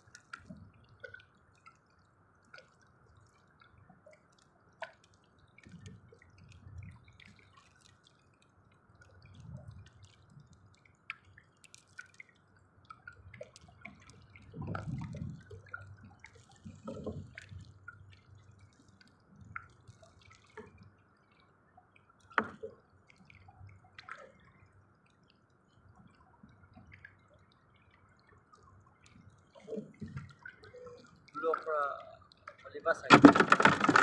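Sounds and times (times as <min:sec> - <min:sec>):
water dripping and trickling: 0:00.0 - 0:34.0
water sloshing: 0:29.5 - 0:34.0.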